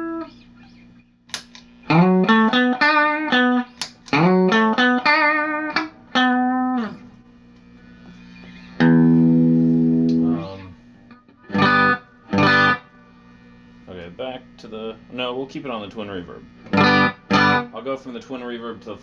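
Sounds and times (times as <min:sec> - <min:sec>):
electric guitar riff and chord: 0:00.0 - 0:00.4, 0:01.3 - 0:07.2, 0:08.6 - 0:13.2, 0:16.6 - 0:17.8.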